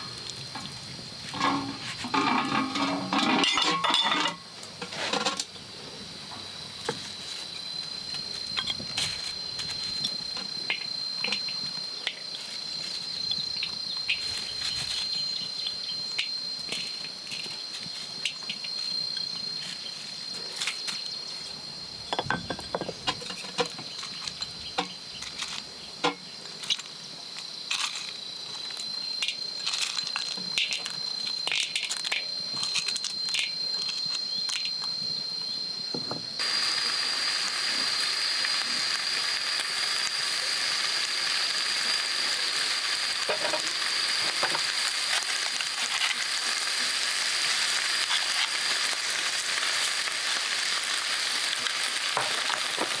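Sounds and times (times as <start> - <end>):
high-pitched insect drone: 0.0 - 4.6, 27.5 - 53.0
sizzling hiss of frying: 0.0 - 53.0.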